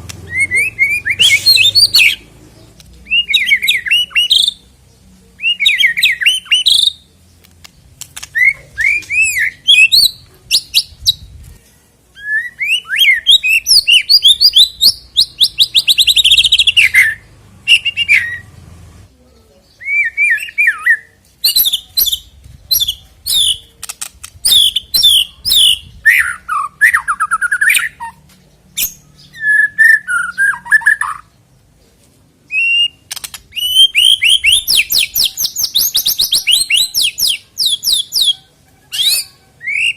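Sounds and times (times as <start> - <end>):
bird singing whistles and trills: 0.2 - 2.2, 5.4 - 7.0, 8.3 - 11.3, 12.2 - 18.4, 19.8 - 23.7, 24.4 - 28.2, 28.8 - 31.3, 32.5 - 38.4.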